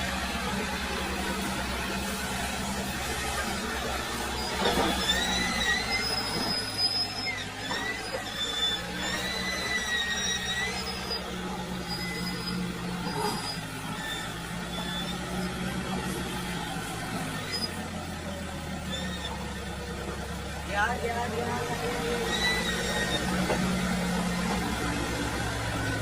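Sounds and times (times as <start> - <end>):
tractor engine running under load: 0.0 - 26.0
high wavering squeal: 4.1 - 15.4, 22.1 - 24.0.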